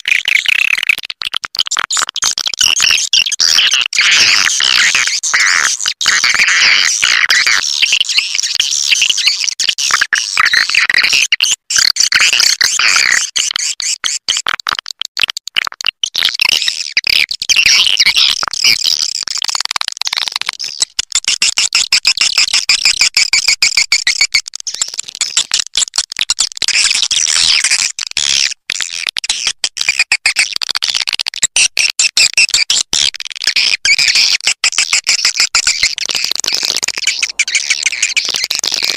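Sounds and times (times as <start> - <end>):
swiftlets chirping and twittering: 35.6 - 38.9.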